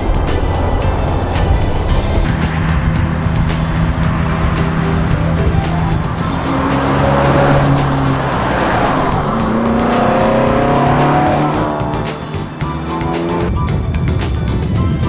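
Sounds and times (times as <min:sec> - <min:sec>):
music playing: 0:00.0 - 0:15.0
car engine driving past: 0:01.6 - 0:12.5.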